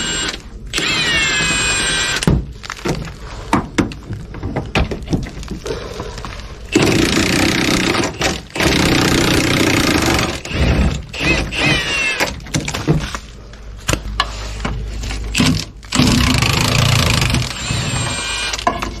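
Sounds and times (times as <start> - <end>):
impact wrench running: 0.0 - 2.3, 6.7 - 12.4, 15.3 - 18.8.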